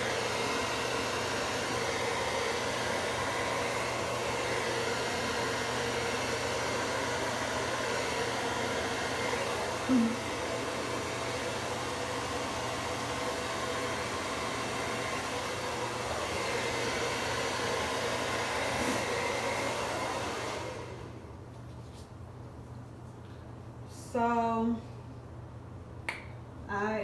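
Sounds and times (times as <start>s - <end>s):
hair dryer blowing: 0.0s - 21.4s.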